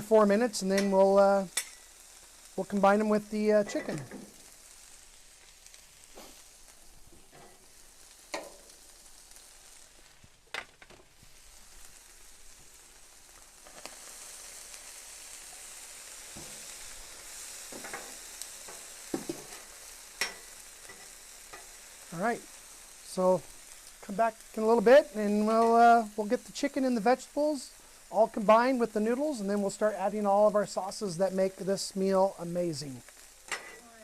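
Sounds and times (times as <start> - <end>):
vegetables sizzling in oil: 0.0 - 34.0
spatula clicking on griddle: 8.3 - 8.7, 18.7 - 21.7.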